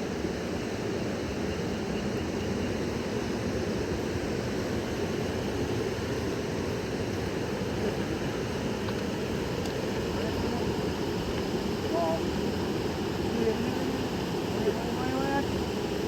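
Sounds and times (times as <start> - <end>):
river water rushing: 3.7 - 16.0.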